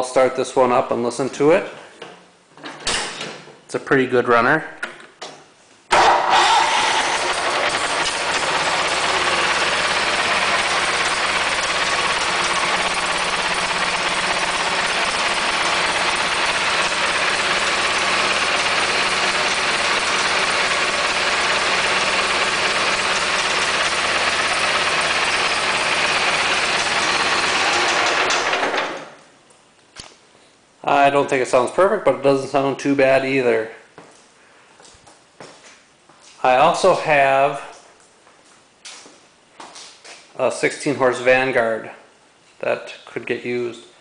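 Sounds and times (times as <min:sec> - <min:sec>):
garden tractor engine running: 0:06.0 - 0:29.1.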